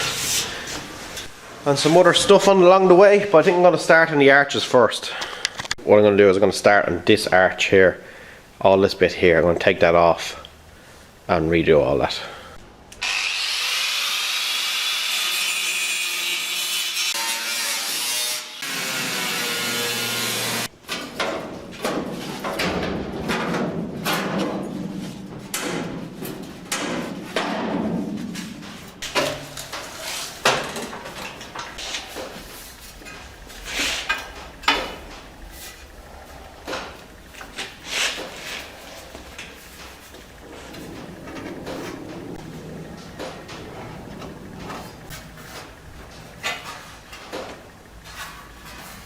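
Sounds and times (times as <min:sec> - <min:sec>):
cutting tool on sheet metal: 0:13.0 - 0:20.7.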